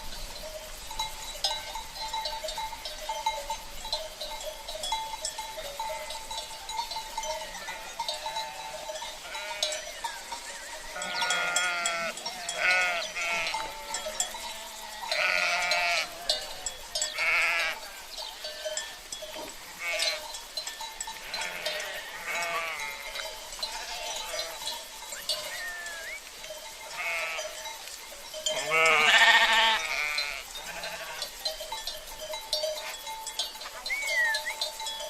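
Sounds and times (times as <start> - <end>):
cowbells ringing: 0.0 - 35.0
sheep bleating: 7.4 - 9.8, 10.9 - 14.0, 14.6 - 17.9, 19.8 - 20.2, 21.2 - 24.7, 25.4 - 26.2, 26.9 - 27.6, 28.5 - 31.3.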